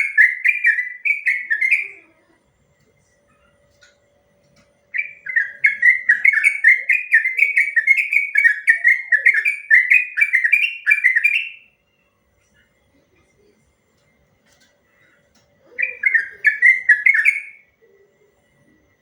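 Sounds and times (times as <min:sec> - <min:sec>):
bulbul singing repeated notes: 0:00.0 - 0:02.1, 0:04.9 - 0:11.8, 0:15.6 - 0:18.0.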